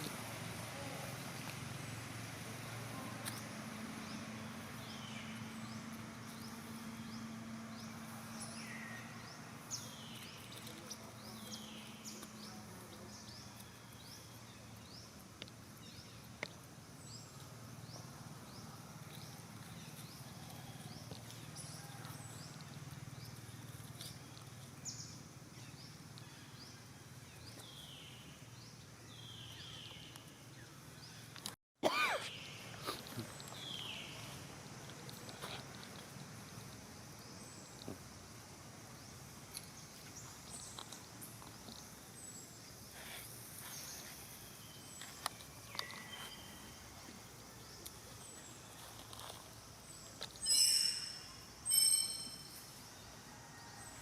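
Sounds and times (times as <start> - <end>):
high animal chirps: 50.4 - 52.6.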